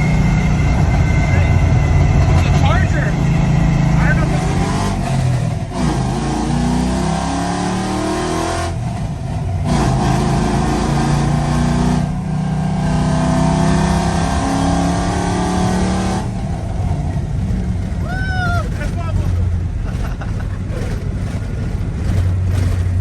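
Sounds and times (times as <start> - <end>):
truck engine revving: 0.0 - 23.0.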